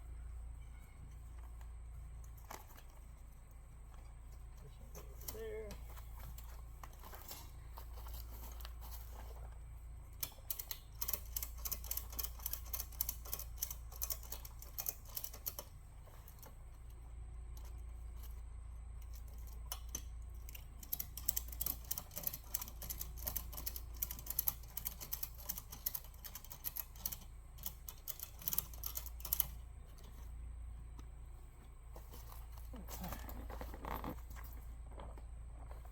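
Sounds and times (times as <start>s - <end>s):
zip ties ratcheting clicks: 10.2s - 15.7s, 19.0s - 29.6s.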